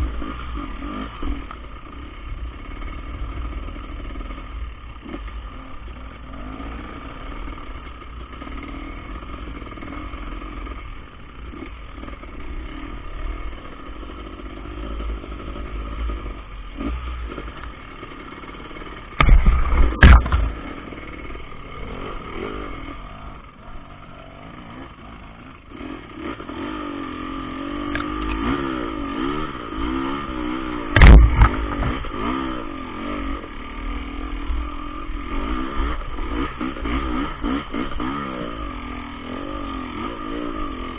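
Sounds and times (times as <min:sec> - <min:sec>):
dirt bike engine revving: 0:00.0 - 0:40.9
loud thumps: 0:19.2 - 0:20.8, 0:30.9 - 0:32.2.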